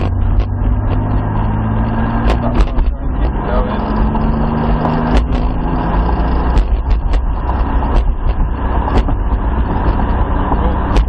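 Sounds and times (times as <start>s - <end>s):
car engine drone from inside: 0.0s - 11.0s.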